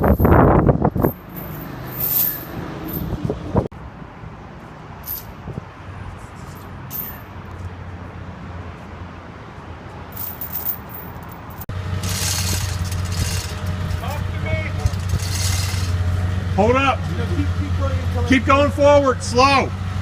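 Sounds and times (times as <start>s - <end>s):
loud engine hum: 0.0s - 4.4s, 11.7s - 20.0s
vehicle engine idling: 11.7s - 19.8s.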